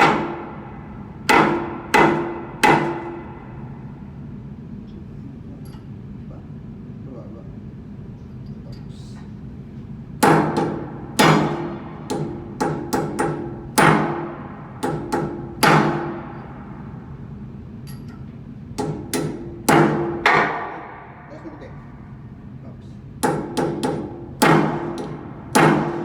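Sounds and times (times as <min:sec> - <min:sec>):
hammer striking metal: 0:00.0 - 0:03.7, 0:10.2 - 0:16.9, 0:18.8 - 0:21.4, 0:23.2 - 0:26.0.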